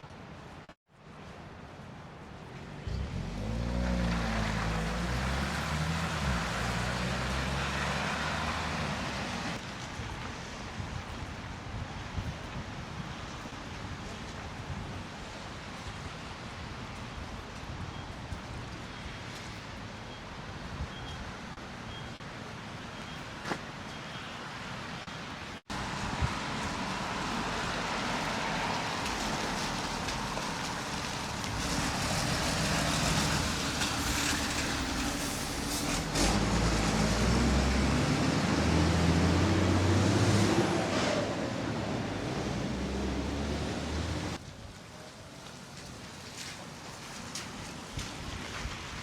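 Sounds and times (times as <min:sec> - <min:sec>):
vehicle engines running: 0:02.4 - 0:09.7, 0:25.7 - 0:44.4
faint beeps: 0:20.1 - 0:21.3, 0:21.9 - 0:22.2.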